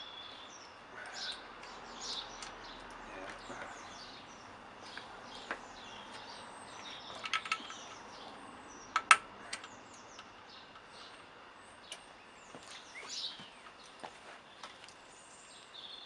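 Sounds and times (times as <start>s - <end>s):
small birds chirping: 0.0s - 16.0s
metallic clicks of hand tools: 7.2s - 8.0s, 9.0s - 10.9s.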